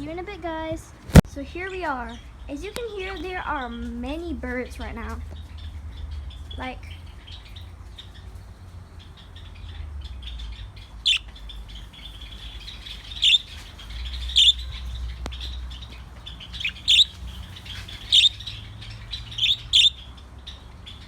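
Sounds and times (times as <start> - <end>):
birds chirping: 0.0 - 21.0
loud sharp bird calls: 5.0 - 21.0.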